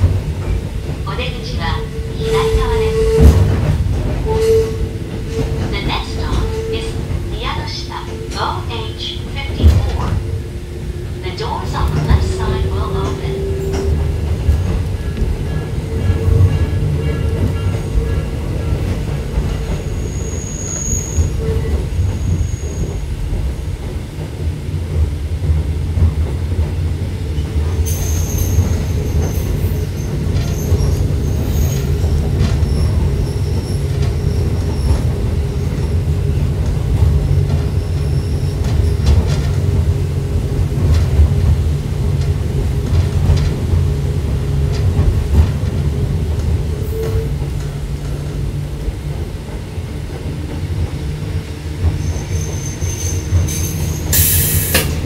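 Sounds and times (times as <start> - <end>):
electric train rumbling: 0.0 - 55.0
high-pitched wheel squeal: 19.8 - 22.9.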